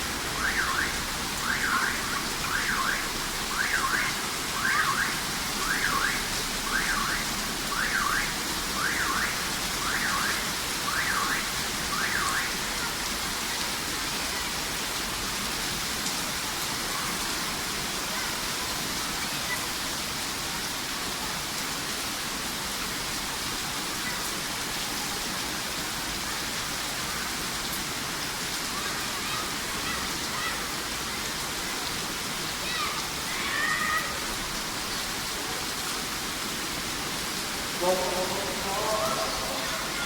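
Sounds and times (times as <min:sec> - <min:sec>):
heavy rain falling: 0:00.0 - 0:40.0
car alarm whooping: 0:00.4 - 0:12.6.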